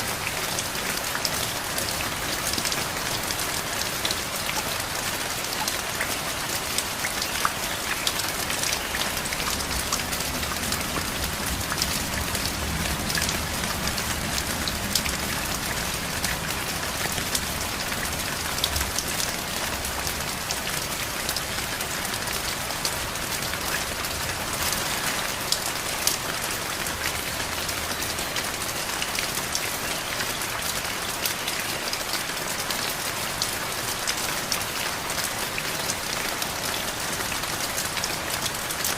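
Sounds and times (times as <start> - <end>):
heavy rain with ticking drops: 0.0 - 38.9.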